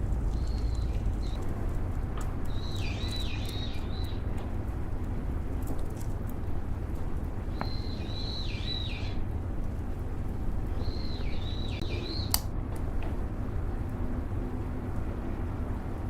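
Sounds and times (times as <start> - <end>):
low rumble: 0.0 - 16.0
songbird whistling: 2.5 - 4.2, 7.5 - 9.2, 10.8 - 12.4
sharp click: 12.3 - 12.5.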